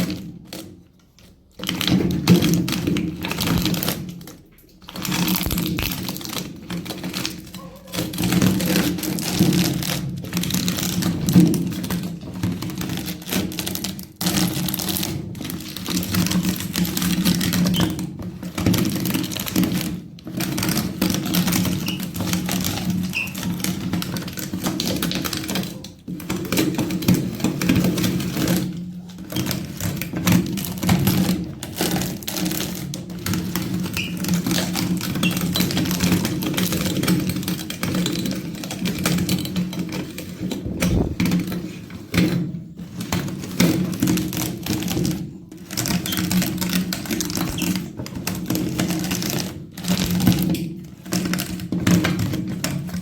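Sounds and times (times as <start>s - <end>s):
walnuts cracking and crunching: 5.0s - 6.3s.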